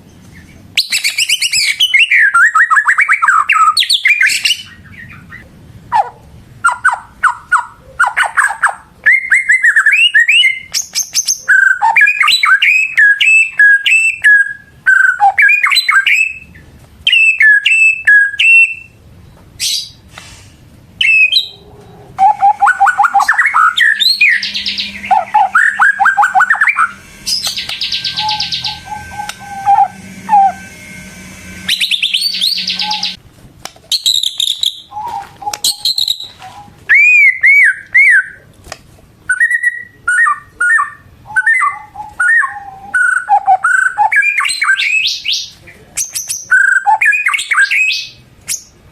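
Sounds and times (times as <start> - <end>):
songbird singing whistled phrases: 0.8 - 5.3, 6.7 - 19.0, 21.0 - 21.6, 22.2 - 30.7, 31.6 - 33.2, 33.9 - 38.4, 39.3 - 48.8
rapid buzzy bird trill: 21.0 - 33.2.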